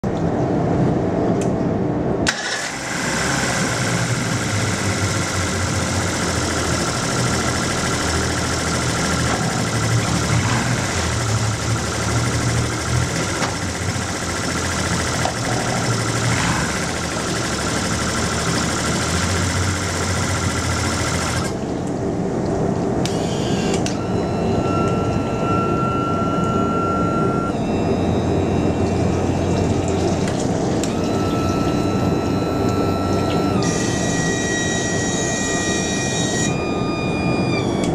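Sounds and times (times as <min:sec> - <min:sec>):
outboard motor running: 0:02.3 - 0:22.4, 0:27.5 - 0:37.8
thin steady whistle: 0:23.1 - 0:29.4, 0:30.9 - 0:37.9.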